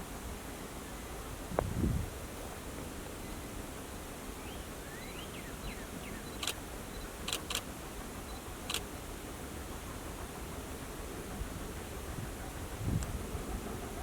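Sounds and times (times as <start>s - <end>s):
camera shutter clicks: 6.4s - 6.6s, 7.3s - 7.7s.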